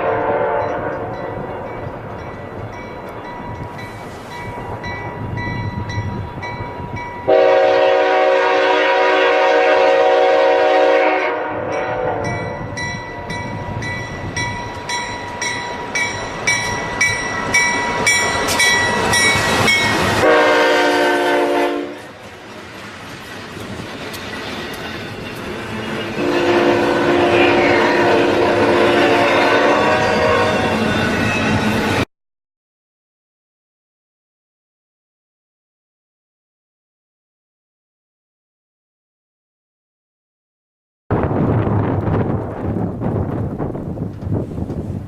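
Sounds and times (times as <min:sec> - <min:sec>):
locomotive horn blasts: 0:00.0 - 0:01.2, 0:07.3 - 0:12.8, 0:20.2 - 0:22.1, 0:26.1 - 0:30.8
train rumbling past: 0:00.0 - 0:32.1, 0:41.1 - 0:45.0
bell ringing: 0:12.3 - 0:20.2.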